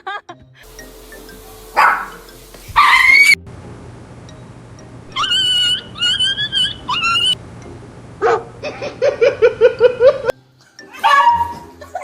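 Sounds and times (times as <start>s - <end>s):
dog whining: 2.8s - 3.4s, 5.1s - 7.4s, 11.0s - 11.6s.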